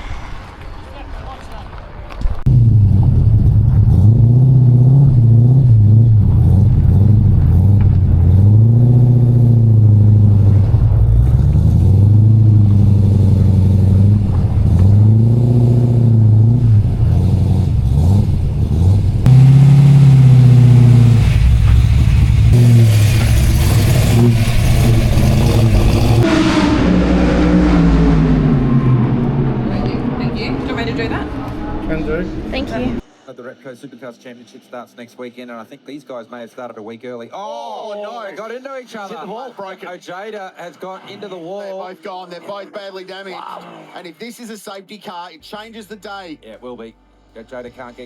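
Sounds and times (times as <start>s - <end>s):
race car engine accelerating: 2.4s - 33.1s.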